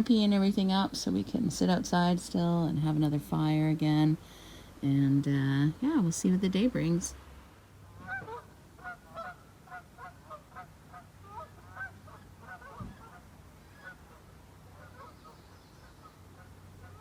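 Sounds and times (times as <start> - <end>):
geese honking: 8.0 - 15.4, 16.0 - 17.0.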